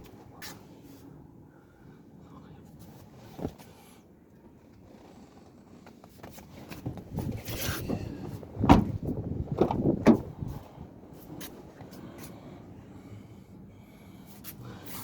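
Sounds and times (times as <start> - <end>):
knocks: 8.7 - 10.4.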